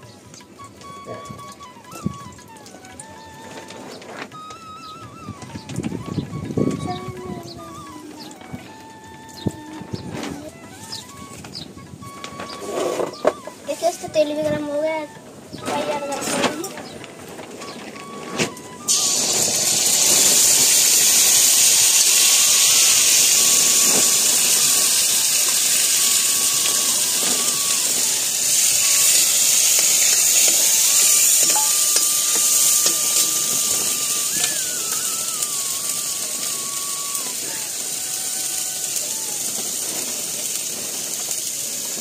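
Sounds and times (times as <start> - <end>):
paste sizzling in hot oil: 18.9 - 42.0.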